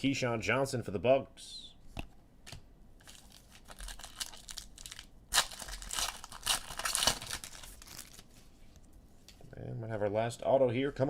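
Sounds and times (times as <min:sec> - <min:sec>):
plastic packaging crinkling: 0:03.0 - 0:08.4.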